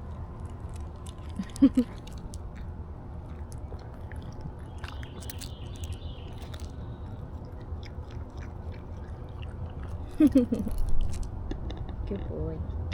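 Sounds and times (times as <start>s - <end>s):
dog lapping water: 7.3s - 11.2s.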